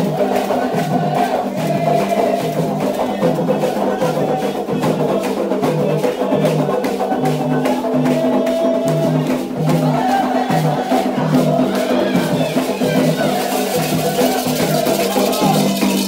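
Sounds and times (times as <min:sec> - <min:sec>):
group singing: 0:00.0 - 0:16.0
rhythmic percussion strikes: 0:00.0 - 0:16.0.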